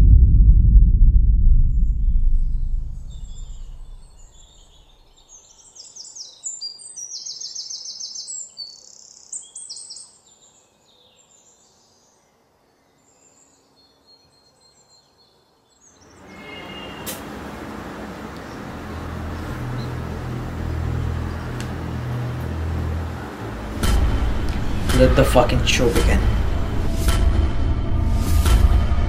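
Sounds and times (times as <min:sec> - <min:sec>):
deep low boom: 0:00.0 - 0:04.8, 0:18.6 - 0:29.0
small birds chirping: 0:03.0 - 0:26.7.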